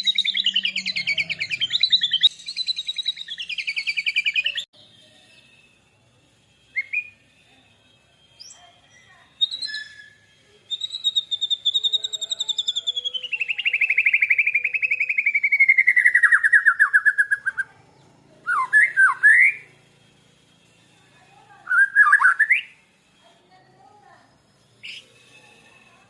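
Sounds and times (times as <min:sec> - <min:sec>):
birds singing: 0:00.0 - 0:04.7, 0:10.8 - 0:19.7, 0:21.7 - 0:22.7
bird trill: 0:00.0 - 0:05.5, 0:08.3 - 0:19.8, 0:21.6 - 0:23.1.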